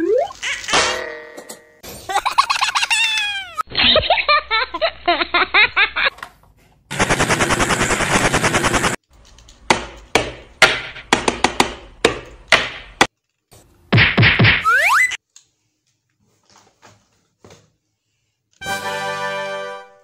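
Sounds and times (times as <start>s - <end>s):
warbling chirpy cartoon effect: 0.0s - 0.4s, 14.6s - 15.2s
rapid machine-gun fire: 6.9s - 9.0s.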